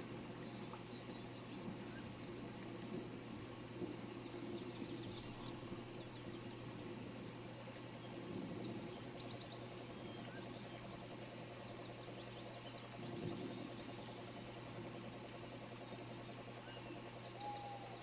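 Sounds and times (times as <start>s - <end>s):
low steady hum: 0.0s - 18.0s
rain hiss: 0.0s - 18.0s
birds chirping: 16.6s - 18.0s.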